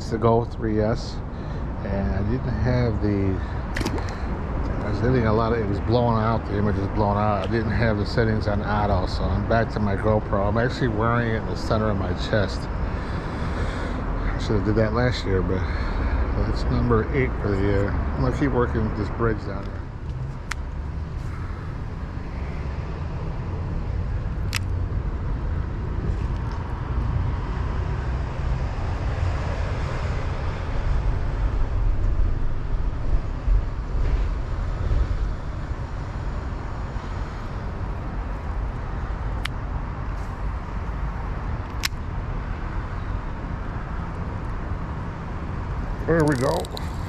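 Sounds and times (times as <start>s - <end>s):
low rumbling outdoor noise: 0.0s - 47.0s
sharp clicks: 41.6s - 42.0s.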